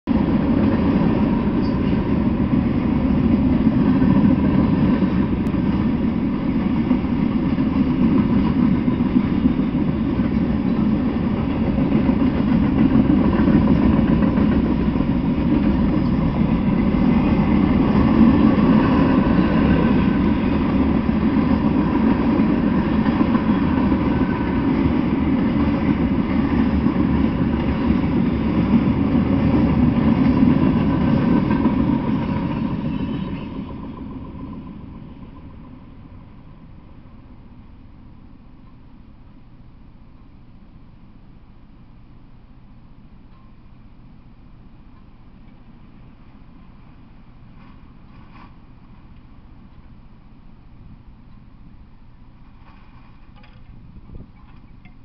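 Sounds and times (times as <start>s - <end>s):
freight train wheels rumbling: 0.1s - 39.5s.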